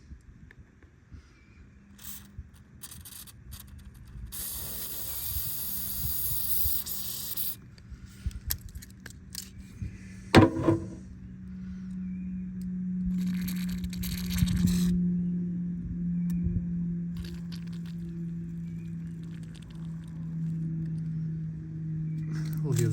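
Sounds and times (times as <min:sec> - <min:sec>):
aerosol spray hissing: 0:04.4 - 0:07.6
loud knock: 0:10.4 - 0:11.0.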